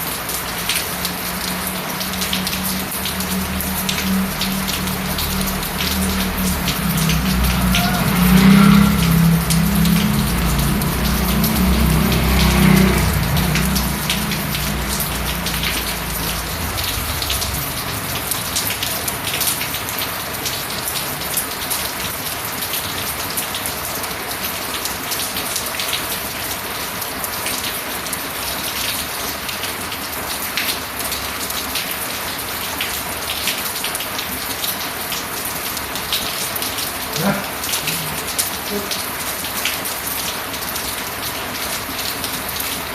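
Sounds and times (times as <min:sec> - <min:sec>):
steady rain falling: 0:00.0 - 0:42.9
low rumble: 0:01.4 - 0:20.0.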